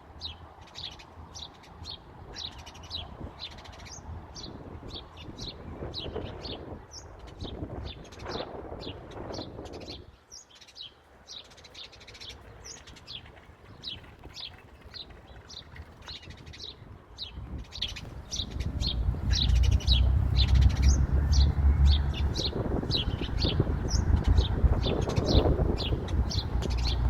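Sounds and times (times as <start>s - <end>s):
bird chirping: 9.3s - 27.0s
low rumble: 17.7s - 27.0s.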